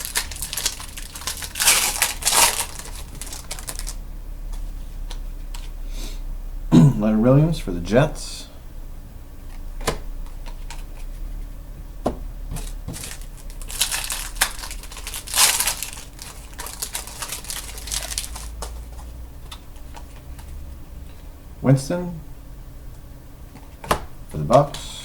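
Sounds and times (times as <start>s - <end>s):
trading cards crinkling: 0.0s - 4.0s, 12.6s - 20.6s.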